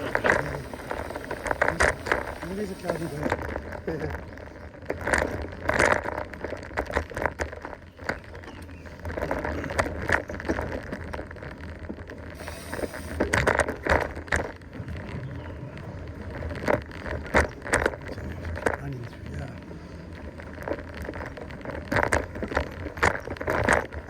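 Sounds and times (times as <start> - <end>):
bike rattling over dirt: 0.0 - 24.0
low rumble: 14.2 - 24.0.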